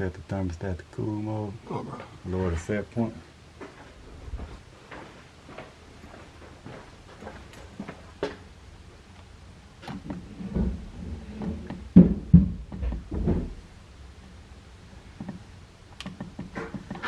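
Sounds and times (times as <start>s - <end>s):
low knocks and thumps: 9.9s - 13.7s.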